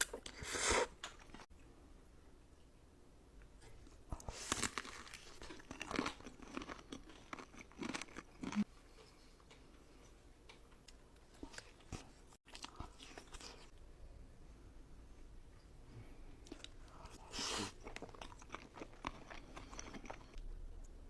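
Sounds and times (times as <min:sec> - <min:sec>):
crunchy bites and chewing: 0:04.2 - 0:08.7.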